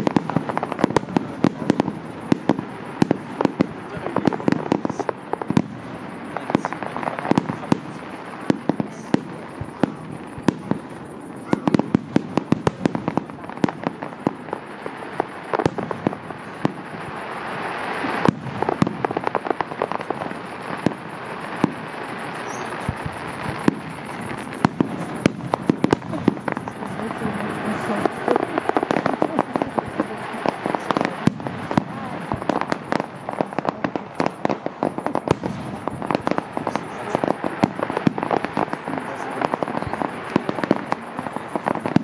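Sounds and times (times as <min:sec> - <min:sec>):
loud firework bang: 0:22.4 - 0:30.1.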